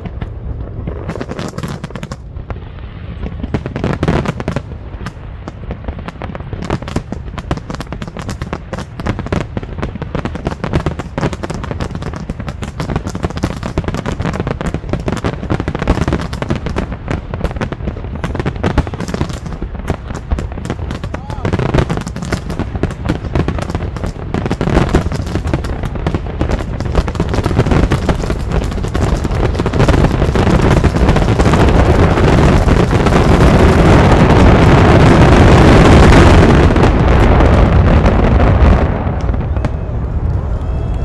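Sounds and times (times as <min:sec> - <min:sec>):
fireworks bangs and crackles: 0:00.0 - 0:41.0.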